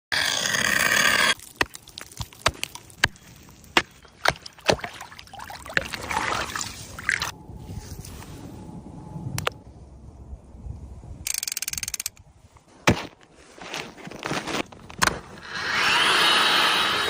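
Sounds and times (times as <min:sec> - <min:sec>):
water splashing and rushing: 0:01.3 - 0:07.4
water sloshing: 0:01.4 - 0:07.3.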